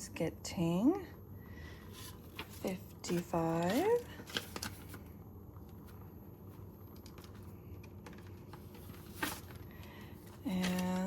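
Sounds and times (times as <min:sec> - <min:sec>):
paper banknotes rustling: 0:01.9 - 0:05.1, 0:07.0 - 0:11.0.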